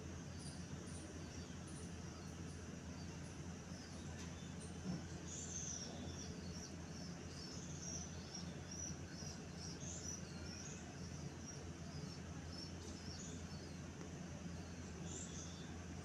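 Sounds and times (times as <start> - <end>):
small birds chirping: 0.0 - 16.0
steady low hum: 0.0 - 16.0.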